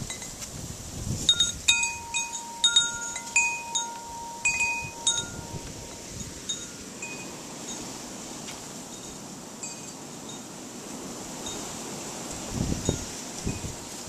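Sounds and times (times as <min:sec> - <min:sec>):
metal wind chimes ringing: 0:00.0 - 0:00.4, 0:01.2 - 0:08.2, 0:08.8 - 0:10.6, 0:12.8 - 0:13.8
strong wind: 0:00.0 - 0:14.0
wind rustle on microphone: 0:00.0 - 0:14.0.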